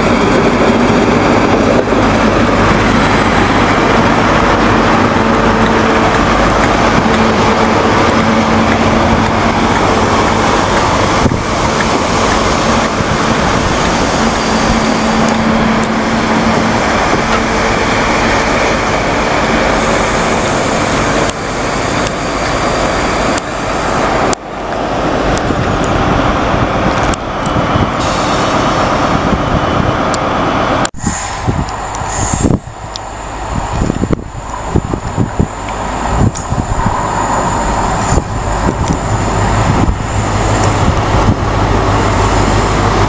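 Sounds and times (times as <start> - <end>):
diesel engine passing: 0.0 - 30.9
train wheels rumbling on rail: 0.0 - 43.0.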